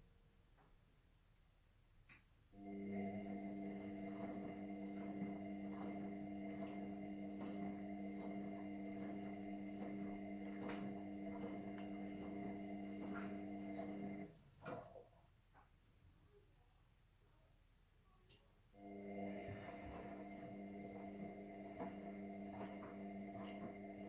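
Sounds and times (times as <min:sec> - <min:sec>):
washing machine motor hum: 0:02.6 - 0:15.1, 0:18.8 - 0:24.0.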